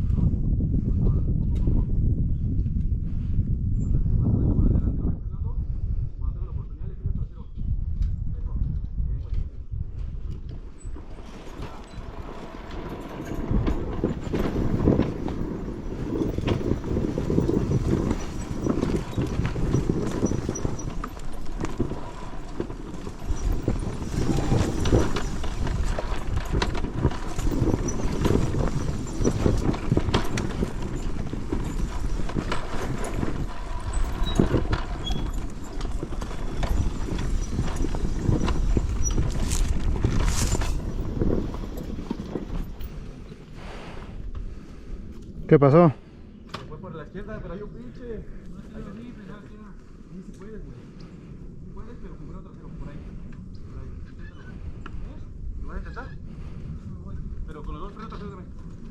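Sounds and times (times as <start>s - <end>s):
dirt bike rattling over rocks: 10.6s - 43.4s.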